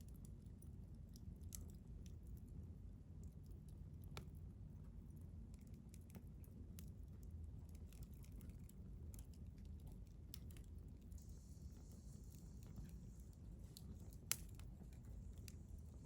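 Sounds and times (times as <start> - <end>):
wood fire crackling: 0.0 - 16.0
faint high hiss: 11.1 - 14.3.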